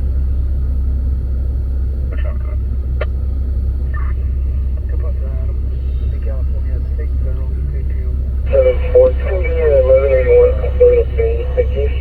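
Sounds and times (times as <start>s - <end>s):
vehicle rumbling: 0.0s - 12.0s.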